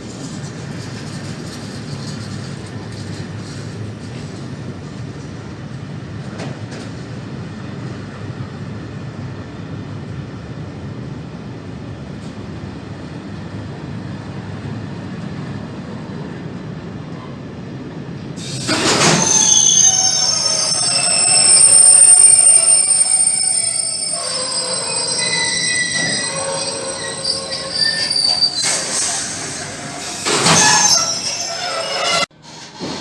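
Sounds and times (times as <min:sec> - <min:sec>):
train rumbling past: 0:18.4 - 0:33.0.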